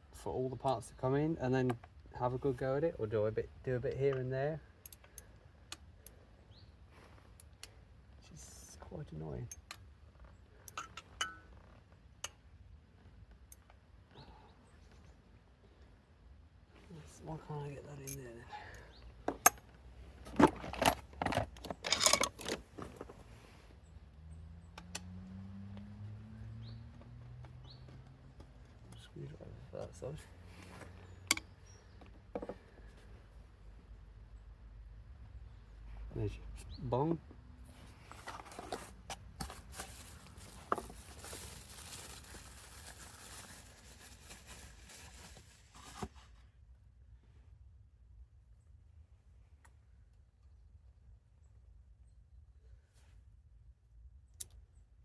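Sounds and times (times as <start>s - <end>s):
metal tools clinking and rattling: 18.0s - 18.2s, 20.3s - 23.0s
rustling and handling noise: 19.2s - 23.7s, 37.7s - 46.5s.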